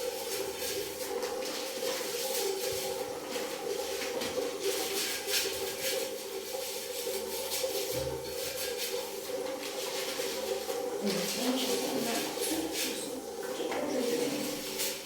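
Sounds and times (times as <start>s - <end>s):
toilet brush scrubbing: 0.0s - 15.0s.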